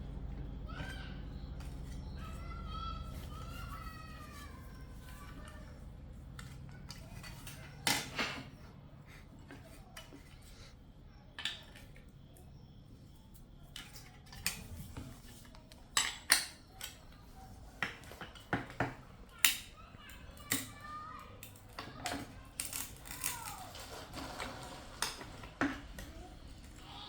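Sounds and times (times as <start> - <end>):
small hard objects clinking: 21.3 - 26.1.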